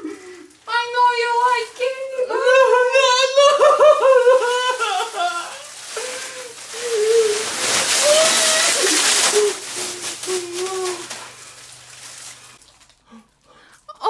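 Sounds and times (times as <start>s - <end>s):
child's wordless voice: 0.7s - 2.4s.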